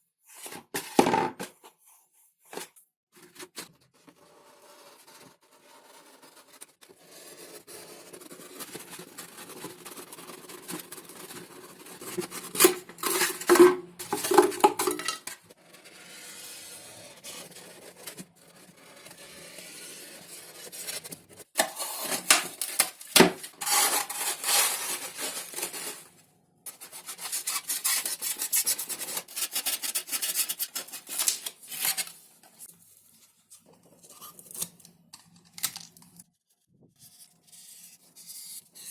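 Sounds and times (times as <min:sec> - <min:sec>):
foam sheet rubbing and scraping: 0:23.5 - 0:31.3.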